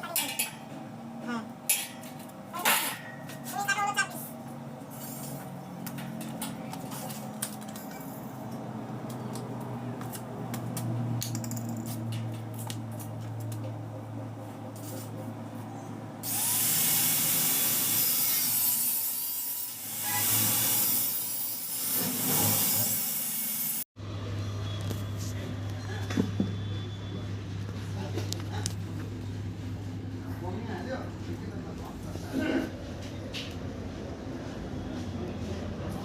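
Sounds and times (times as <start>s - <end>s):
low hum: 4.3s - 16.2s
power tool hissing: 16.2s - 18.9s.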